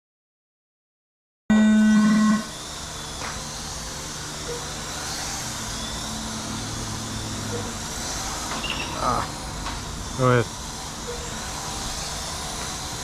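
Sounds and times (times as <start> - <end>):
electronic buzzer tone: 1.5 - 2.7
low hum: 1.5 - 13.0.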